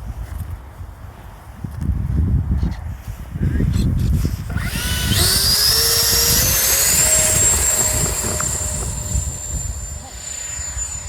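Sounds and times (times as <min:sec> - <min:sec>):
wind buffeting microphone: 0:00.0 - 0:11.0
electric ducted fans whining: 0:04.2 - 0:11.0.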